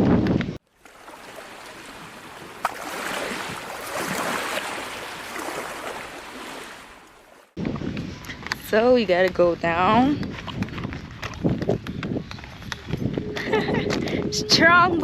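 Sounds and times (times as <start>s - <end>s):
water lapping at shore: 0.6s - 7.6s.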